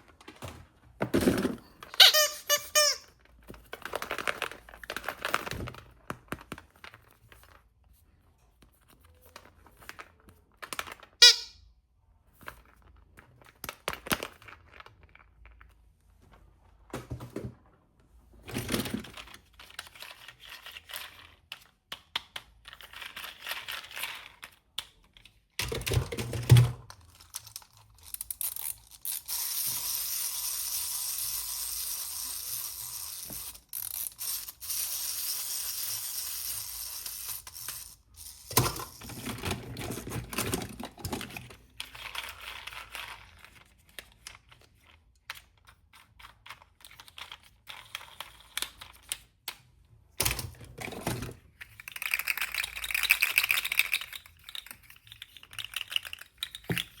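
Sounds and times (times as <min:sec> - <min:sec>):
plastic toy parts clicking: 0:19.0 - 0:57.0.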